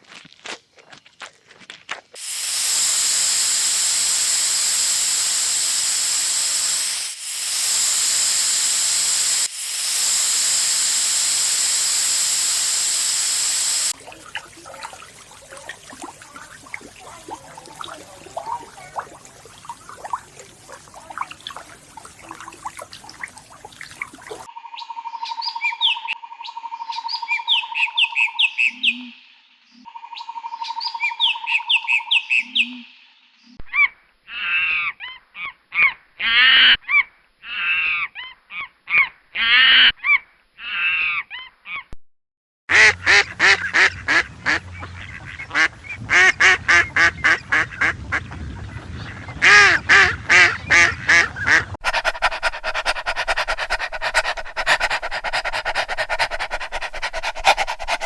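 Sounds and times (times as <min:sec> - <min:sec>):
noise: 0:00.9 - 0:14.0
ducks quacking: 0:42.7 - 0:58.0.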